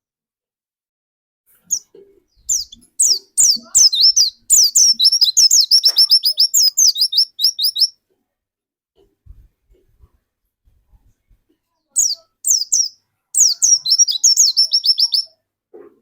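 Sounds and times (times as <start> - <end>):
bird singing high notes: 12.0 - 15.3.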